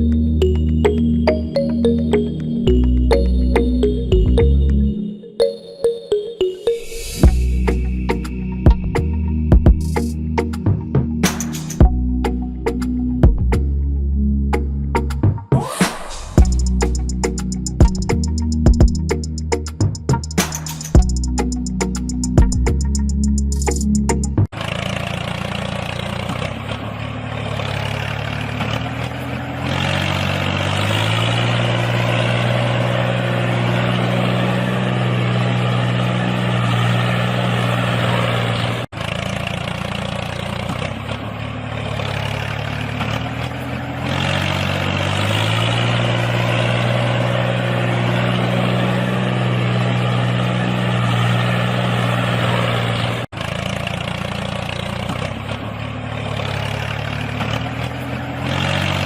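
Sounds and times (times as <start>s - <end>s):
engine idling and revving: 0.0s - 5.0s, 7.1s - 59.0s.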